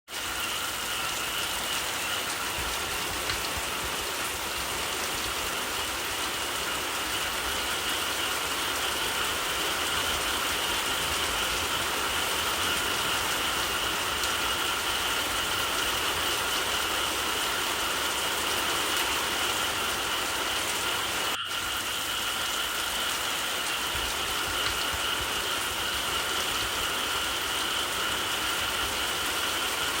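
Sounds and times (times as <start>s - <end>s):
steady rain: 0.1s - 30.0s
frogs calling: 21.1s - 28.6s.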